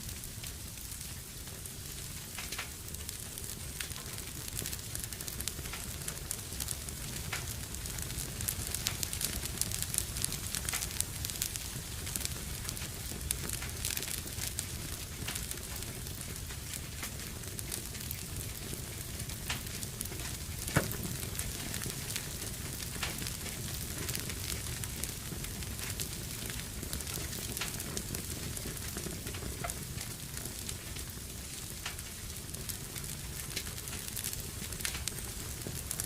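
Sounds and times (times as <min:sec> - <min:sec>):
fireplace fire crackling: 0:00.0 - 0:36.0
loud pop from fire: 0:19.5 - 0:23.3.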